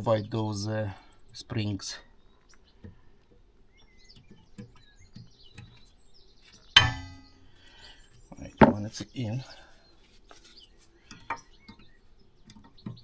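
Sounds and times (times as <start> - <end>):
sharp metal clack: 6.8 - 7.3.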